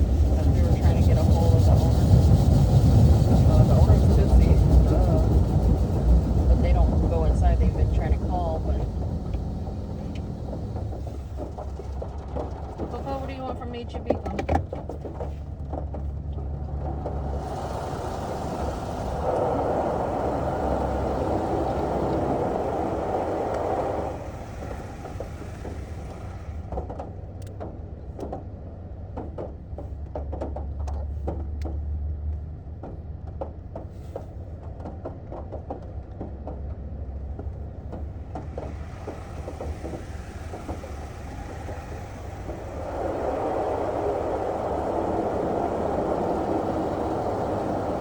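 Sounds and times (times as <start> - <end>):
car wash spray rushing: 0.0 - 15.7, 16.7 - 27.3, 37.5 - 48.0
low engine hum: 0.0 - 48.0.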